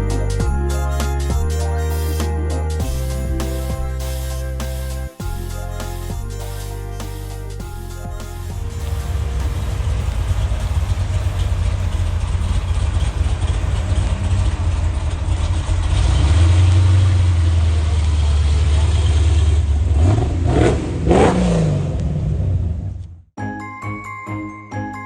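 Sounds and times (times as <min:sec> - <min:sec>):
car engine running and revving: 0:08.6 - 0:22.9.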